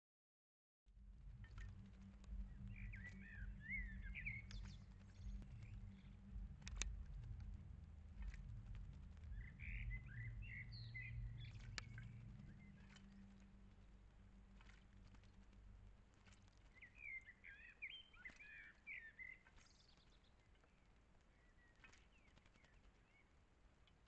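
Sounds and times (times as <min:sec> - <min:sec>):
steady low hum: 0:00.9 - 0:17.5
bird splashing in water: 0:01.4 - 0:24.0.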